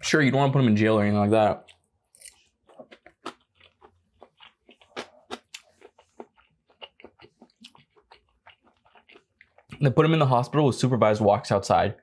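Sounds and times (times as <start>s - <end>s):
person chewing food: 1.6s - 9.8s.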